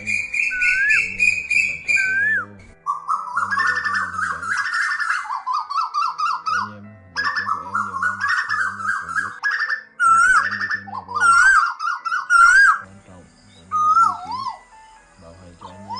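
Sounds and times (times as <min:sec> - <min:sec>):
bird rising-and-falling notes: 0:00.0 - 0:15.9
birds calling chattering notes: 0:00.0 - 0:15.9.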